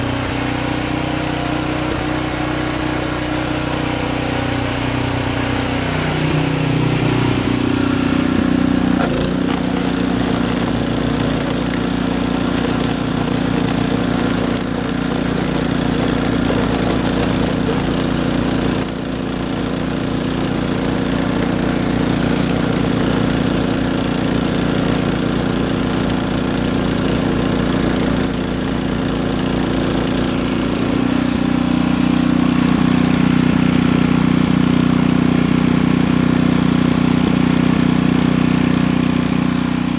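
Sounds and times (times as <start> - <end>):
high whine: 0.0 - 19.8, 29.4 - 35.5
snowblower engine running: 0.0 - 39.9.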